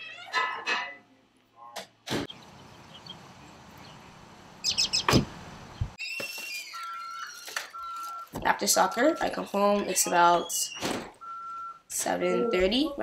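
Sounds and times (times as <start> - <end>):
outdoor street ambience: 0.1 - 13.0
bird chirps: 2.3 - 8.2.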